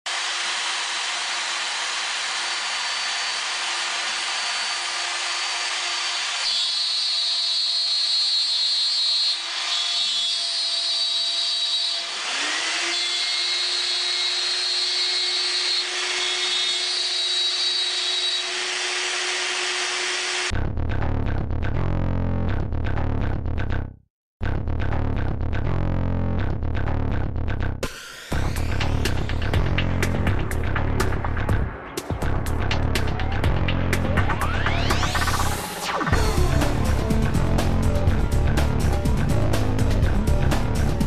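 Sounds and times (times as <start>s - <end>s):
router spindle hissing: 0.1s - 20.5s
machine whining tones: 32.2s - 39.4s.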